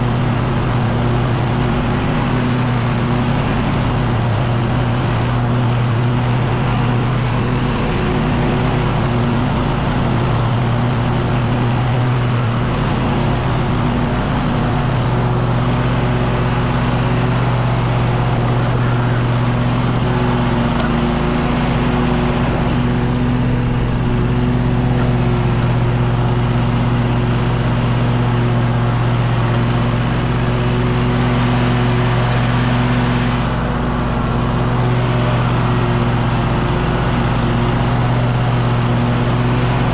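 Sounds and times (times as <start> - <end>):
leaf blower engine running: 0.0 - 39.9.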